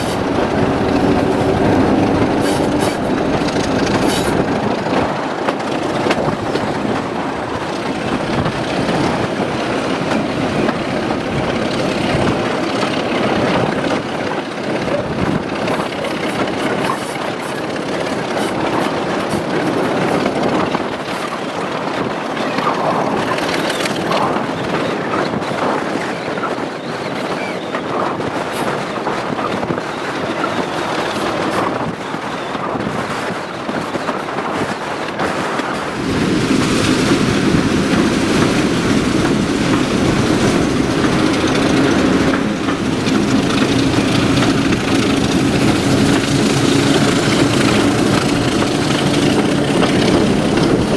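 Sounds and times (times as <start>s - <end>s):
rumble of train wheels on track: 0.0s - 50.9s.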